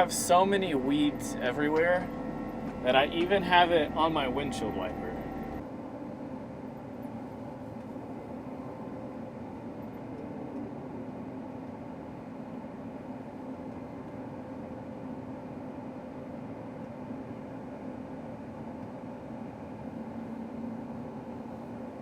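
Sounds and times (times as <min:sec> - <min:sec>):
combine harvester engine drone: 0:00.0 - 0:14.6
constant low hum: 0:00.0 - 0:22.0.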